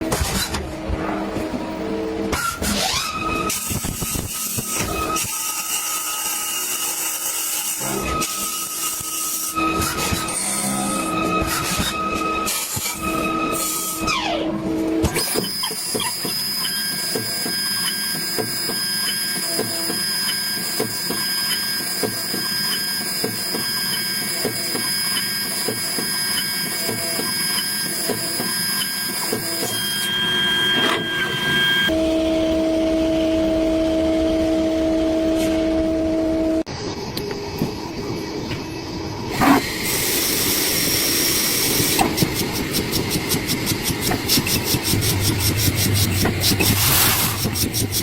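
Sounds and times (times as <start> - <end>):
lathe machinery whining: 16.4 - 48.0
low machine hum: 31.9 - 39.3, 42.1 - 48.0.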